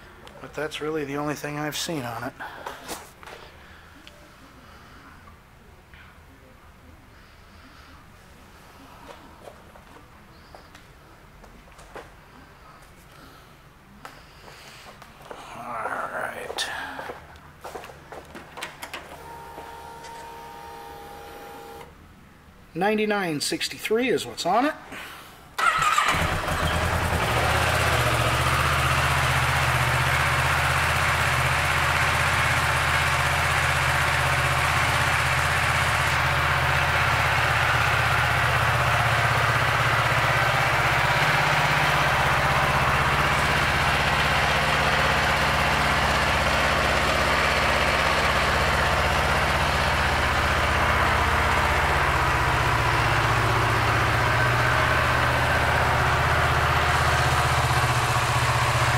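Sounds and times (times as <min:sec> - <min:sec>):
motorcycle engine starting and idling: 0:14.4 - 0:22.0, 0:25.6 - 0:58.9.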